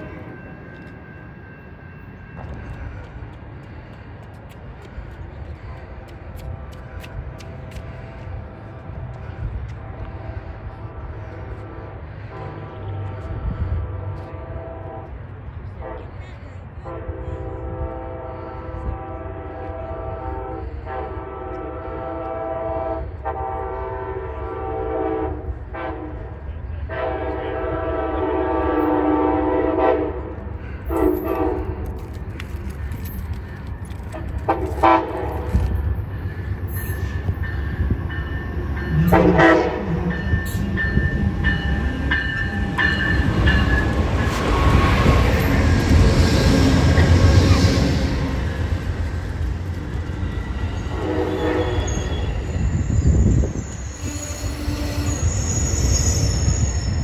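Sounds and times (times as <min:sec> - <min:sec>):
train rolling past: 0:00.0 - 0:57.0
train horn blasts: 0:09.2 - 0:32.0, 0:34.4 - 0:35.7, 0:37.8 - 0:48.4, 0:50.8 - 0:55.5.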